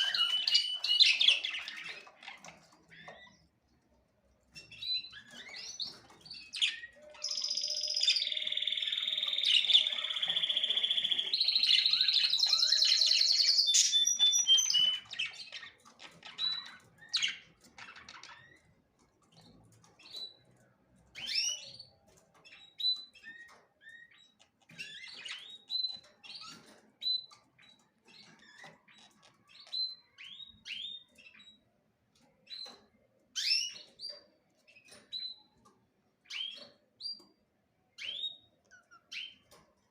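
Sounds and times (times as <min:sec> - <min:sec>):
songbird trilled song: 0:00.0 - 0:02.2, 0:04.7 - 0:18.6.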